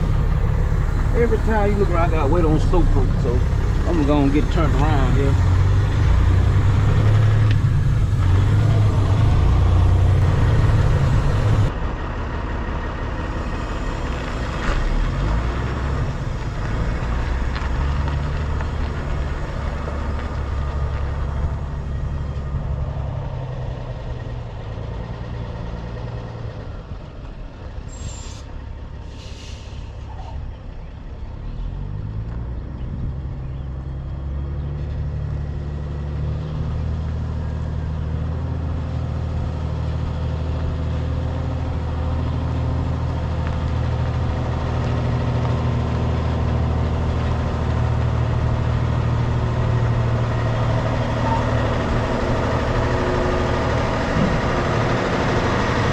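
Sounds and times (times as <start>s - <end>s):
truck diesel engine running: 0.0s - 55.9s
air brake hisses: 27.9s - 30.2s.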